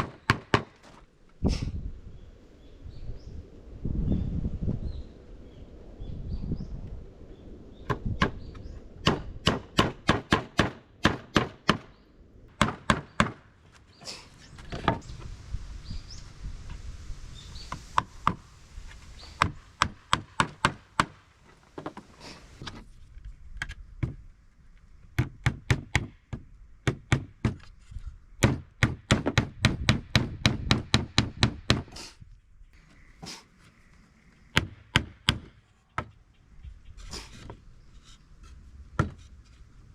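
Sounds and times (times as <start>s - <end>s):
sharp strikes on wood: 9.0s - 11.9s, 12.6s - 13.4s, 39.0s - 39.3s.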